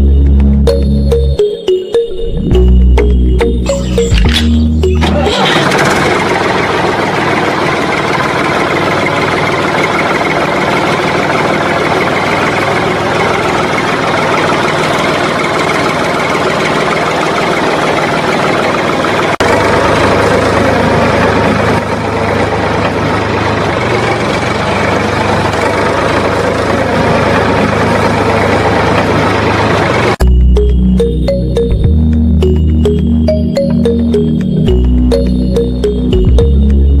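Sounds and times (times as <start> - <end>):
small engine running: 5.0 - 30.2.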